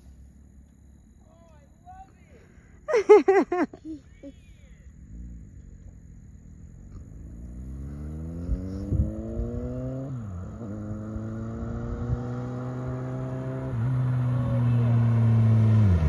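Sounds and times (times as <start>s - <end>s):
motorcycle engine accelerating hard: 5.0s - 16.0s.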